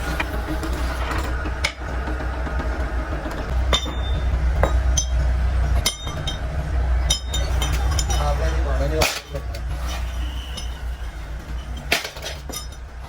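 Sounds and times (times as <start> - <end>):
low machine hum: 0.0 - 13.0
metal parts clinking and ringing: 3.6 - 5.2, 7.1 - 13.0.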